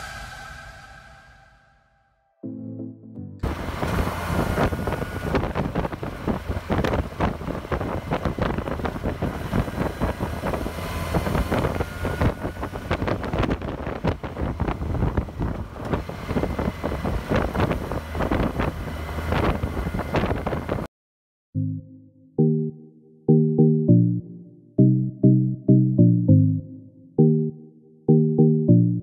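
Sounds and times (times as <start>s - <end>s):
motorcycle engine drone: 3.4s - 20.9s
wind buffeting microphone: 3.4s - 20.9s.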